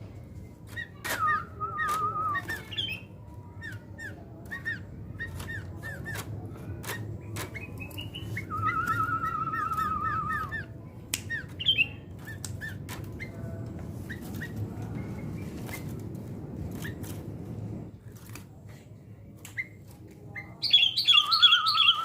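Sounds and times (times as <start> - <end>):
bird chirping and trilling: 0.7 - 15.9, 20.4 - 22.0.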